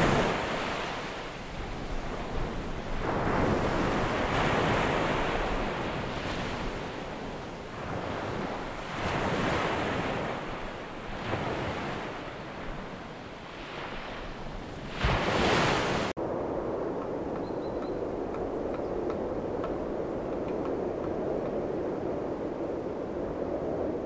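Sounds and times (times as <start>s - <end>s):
ocean surf washing ashore: 0.0s - 17.4s
wind: 0.0s - 24.0s.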